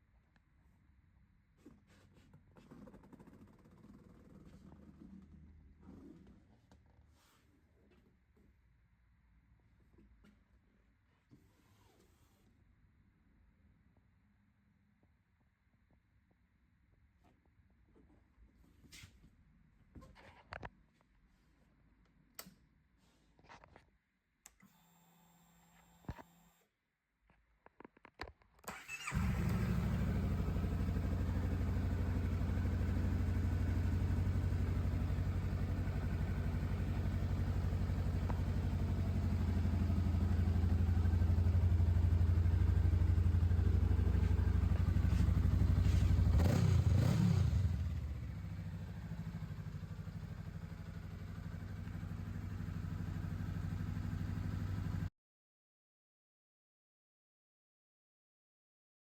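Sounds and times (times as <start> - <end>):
motorcycle engine idling: 29.0 - 55.1.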